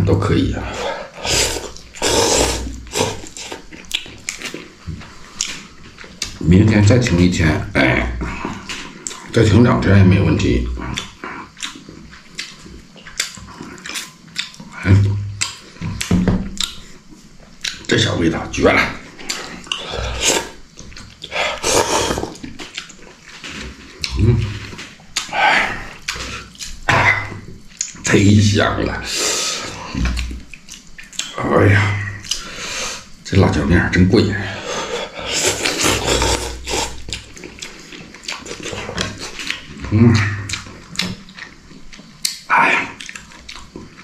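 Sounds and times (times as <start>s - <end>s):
man slurping noodles: 0.7s - 3.7s, 19.8s - 20.6s, 21.3s - 22.4s, 34.8s - 37.2s
throaty grunt: 21.3s - 22.4s, 26.9s - 27.4s, 39.8s - 40.5s.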